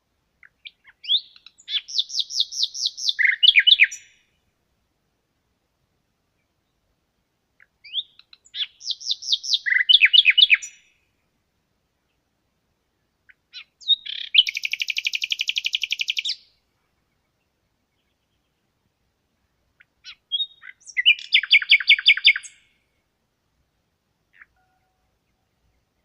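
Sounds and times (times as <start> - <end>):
songbird chirping and trilling: 0.4 - 4.4, 6.3 - 11.1, 13.0 - 23.0, 24.3 - 26.0.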